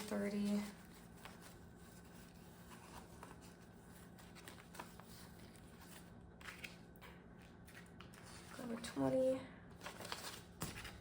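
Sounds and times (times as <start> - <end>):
paper banknotes rustling: 0.0 - 8.8.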